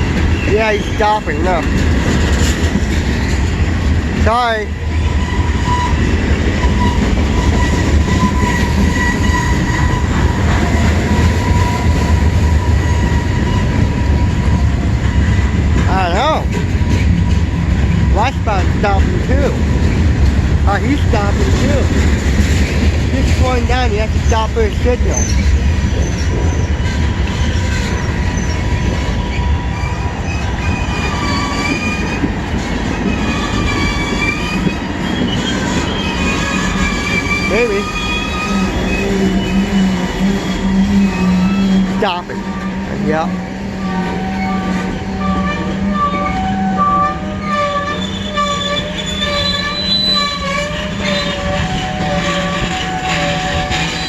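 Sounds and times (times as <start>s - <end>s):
freight train cars rumbling: 0.0s - 54.0s
wheel and brake squeal: 5.2s - 10.2s, 25.1s - 32.3s, 33.0s - 42.8s, 43.8s - 54.0s.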